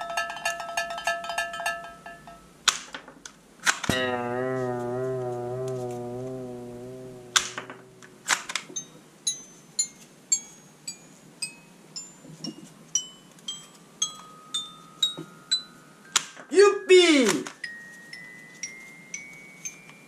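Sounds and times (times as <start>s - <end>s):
held wavering tone: 3.9s - 8.9s.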